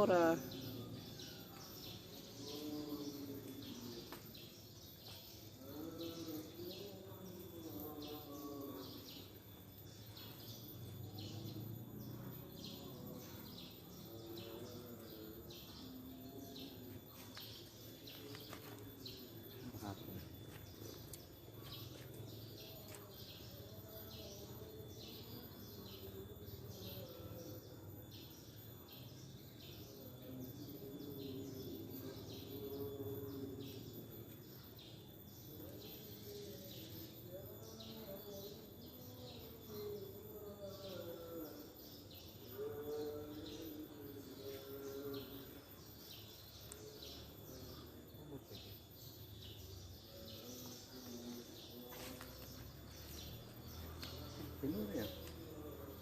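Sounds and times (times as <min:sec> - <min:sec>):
high insect-like hum: 0:00.0 - 0:56.0
faint voices: 0:35.2 - 0:56.0.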